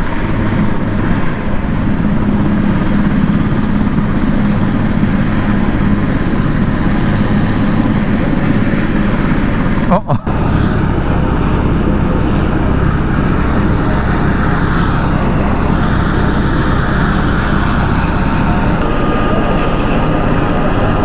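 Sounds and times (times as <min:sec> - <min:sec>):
helicopter engine noise: 0:00.0 - 0:21.0
helicopter rotor throb: 0:00.0 - 0:21.0.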